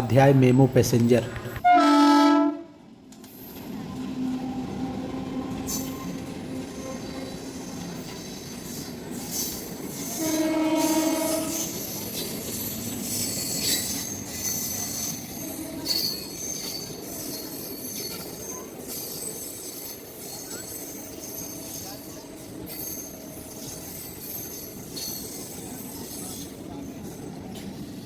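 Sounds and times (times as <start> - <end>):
train horn: 1.6 - 2.8, 10.1 - 11.7
train wheel squeal: 3.2 - 28.0.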